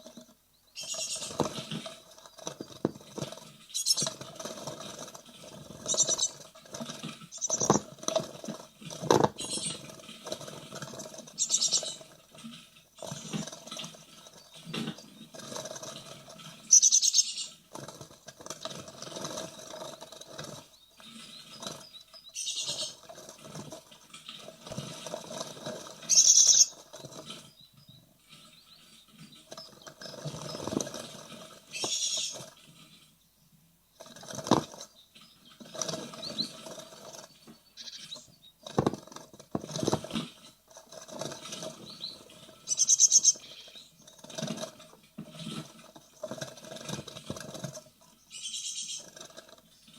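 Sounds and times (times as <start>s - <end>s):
nestlings begging calls: 0.8s - 1.6s, 3.7s - 4.2s, 5.8s - 6.4s, 7.3s - 7.9s, 9.4s - 9.9s, 11.4s - 12.1s, 16.7s - 17.6s, 21.3s - 23.0s, 26.0s - 26.8s, 31.7s - 32.4s, 37.6s - 38.7s, 41.9s - 44.0s, 48.3s - 49.1s.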